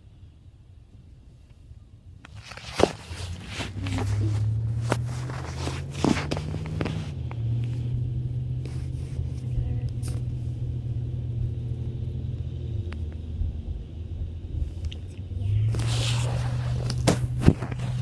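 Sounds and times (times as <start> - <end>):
vehicle engine rumbling: 1.3 - 18.0.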